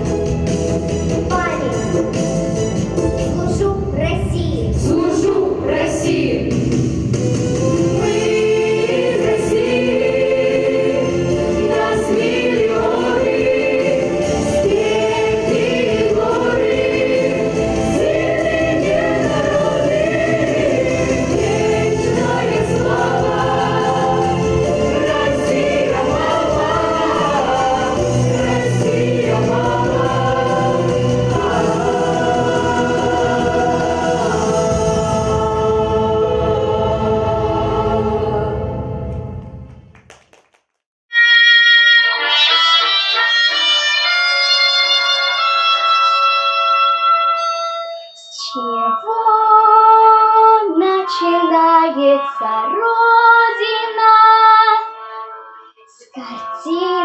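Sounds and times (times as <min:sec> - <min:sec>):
instrumental accompaniment: 0:00.0 - 0:40.0
children's choir singing: 0:04.7 - 0:06.7, 0:07.6 - 0:39.1, 0:48.3 - 0:54.9.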